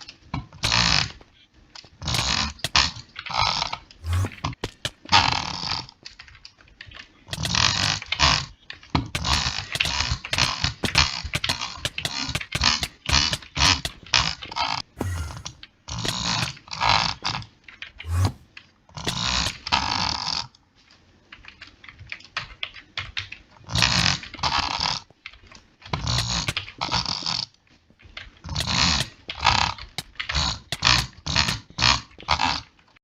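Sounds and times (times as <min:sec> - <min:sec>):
rasping mouth noises: 0:04.0 - 0:04.6, 0:09.1 - 0:16.5, 0:18.0 - 0:18.5.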